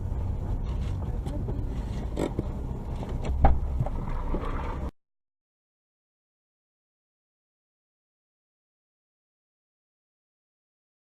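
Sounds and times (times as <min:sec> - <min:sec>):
car driving rumble: 0:00.0 - 0:05.0.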